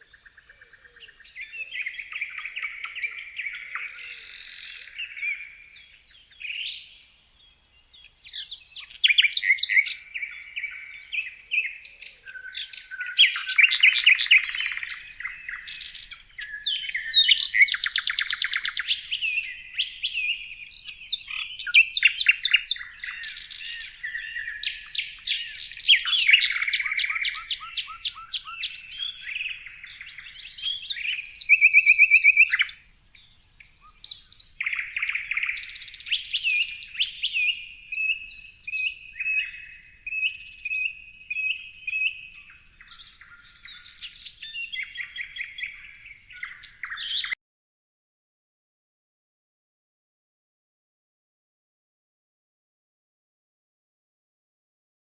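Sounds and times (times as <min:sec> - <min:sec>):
songbirds singing and chirping: 0:00.0 - 0:47.4.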